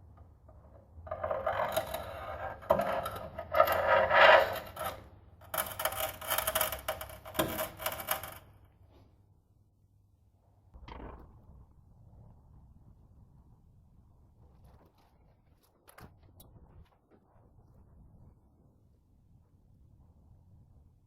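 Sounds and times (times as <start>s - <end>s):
scraping and rubbing: 0.5s - 9.0s.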